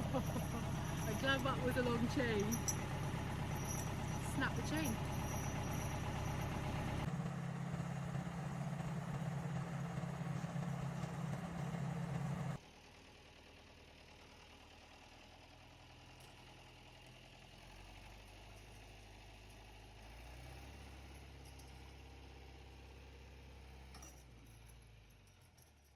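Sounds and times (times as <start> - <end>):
tractor engine running hard: 0.0 - 12.6.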